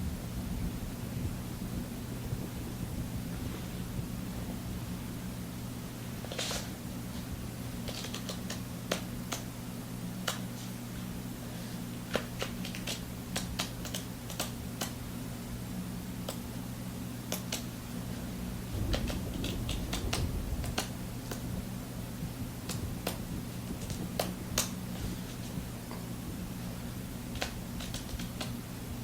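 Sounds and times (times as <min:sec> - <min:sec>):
steady low hum: 0:00.0 - 0:29.0
low rumble: 0:18.2 - 0:23.9
raindrops dripping and tapping: 0:18.6 - 0:24.8.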